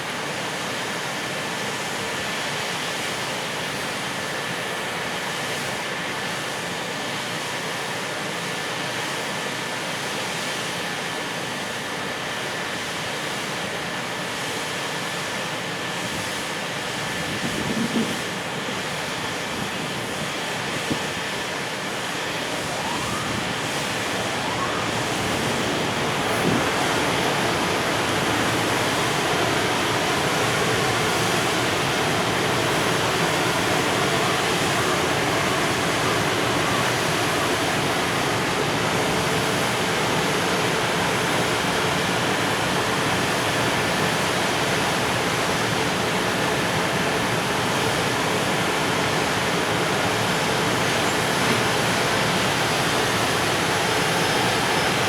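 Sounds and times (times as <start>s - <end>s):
train wheels rushing on rail: 16.8s - 55.0s.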